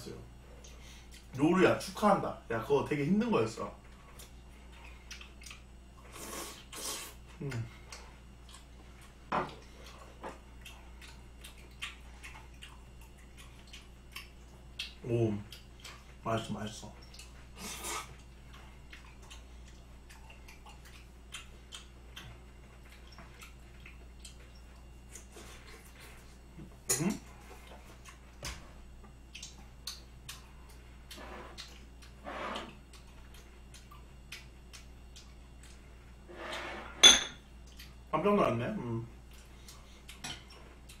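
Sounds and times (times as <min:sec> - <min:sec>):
wet chewing clicks and smacks: 0:00.6 - 0:01.4, 0:03.9 - 0:06.0, 0:07.4 - 0:16.2, 0:16.9 - 0:26.1, 0:27.6 - 0:36.2, 0:37.6 - 0:38.1, 0:39.2 - 0:41.0.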